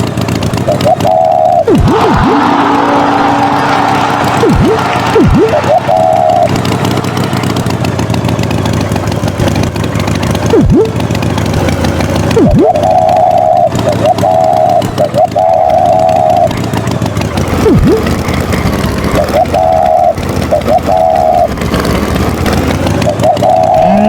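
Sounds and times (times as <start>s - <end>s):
cartoon tractor engine running: 0.0s - 24.0s
swooping pitch drops: 0.6s - 8.0s, 10.4s - 11.0s, 12.3s - 16.7s, 17.5s - 18.2s, 19.0s - 21.6s, 23.0s - 24.0s
higher warbling tone: 0.7s - 9.7s, 10.4s - 11.0s, 12.2s - 21.6s, 23.0s - 24.0s.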